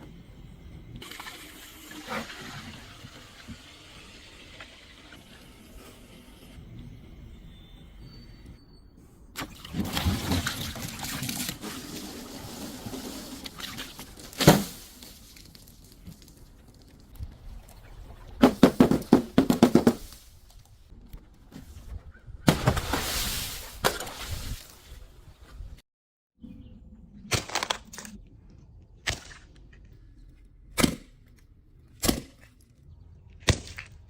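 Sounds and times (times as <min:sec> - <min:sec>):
objects being crushed: 0:09.7 - 0:17.0, 0:18.4 - 0:20.4.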